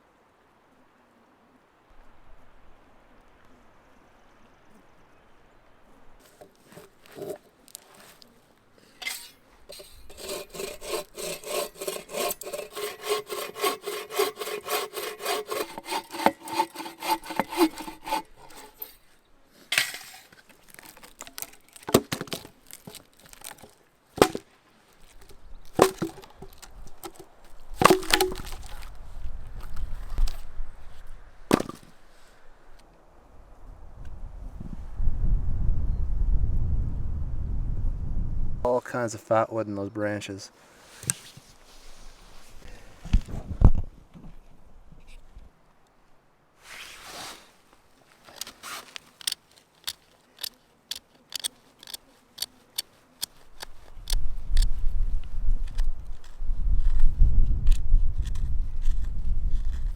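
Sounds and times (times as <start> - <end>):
hand saw cutting wood: 9.0 - 19.1, 48.3 - 54.1
wood cracking: 9.8 - 19.0, 19.7 - 29.0, 31.5 - 31.9, 48.2 - 54.7.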